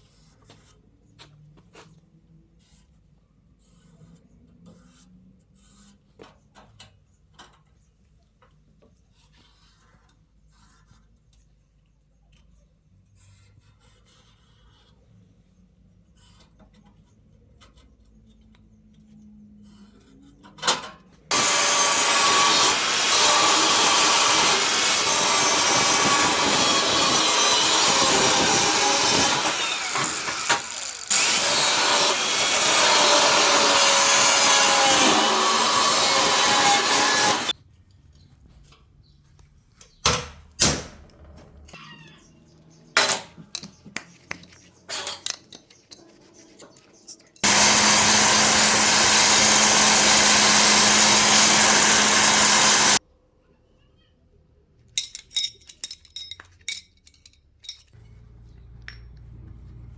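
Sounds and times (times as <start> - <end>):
power tool working material: 21.3 - 37.5, 47.4 - 53.0.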